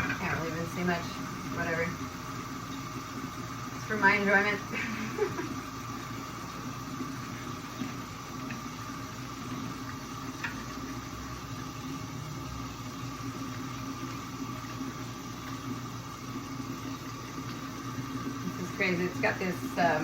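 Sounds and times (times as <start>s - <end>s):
constant hum: 0.0s - 20.0s.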